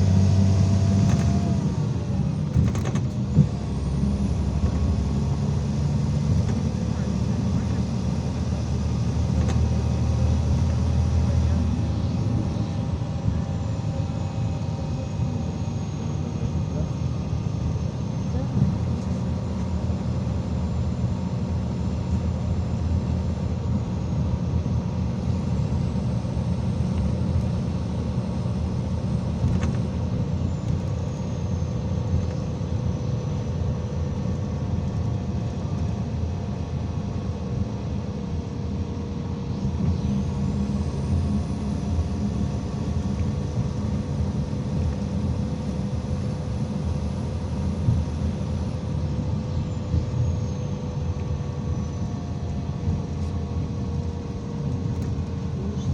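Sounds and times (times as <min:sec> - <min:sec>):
bus engine and road rumble: 0:00.0 - 0:55.9.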